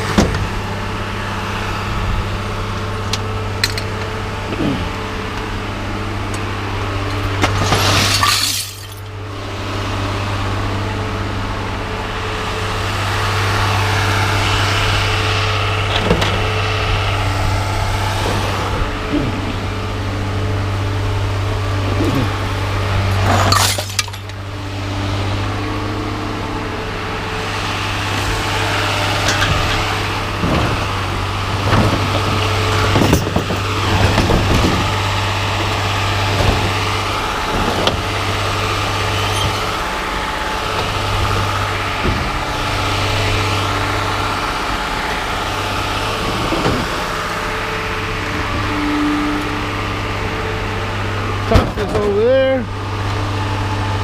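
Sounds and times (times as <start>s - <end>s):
vehicle engine idling: 0.0s - 54.0s
scrap metal crashing down: 7.3s - 9.1s, 23.1s - 24.4s, 29.1s - 39.8s.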